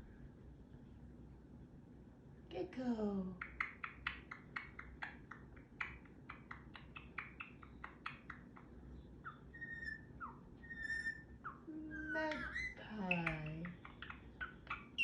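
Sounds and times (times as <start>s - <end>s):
parrot beak clicks: 3.4s - 8.7s
parrot chirps: 3.4s - 15.0s
parrot whistles: 9.3s - 12.8s.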